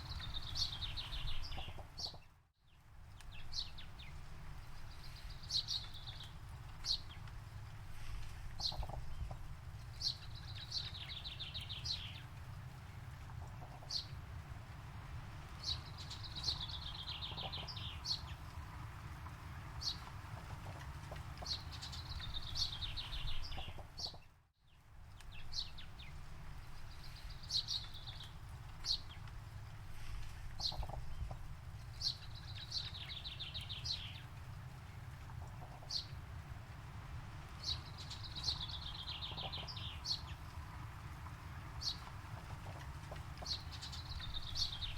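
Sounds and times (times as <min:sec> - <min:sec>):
birds calling and trilling: 0:00.0 - 0:02.3, 0:03.2 - 0:07.3, 0:08.0 - 0:14.2, 0:15.2 - 0:24.2, 0:25.2 - 0:44.9
steady low rumble: 0:24.9 - 0:44.9.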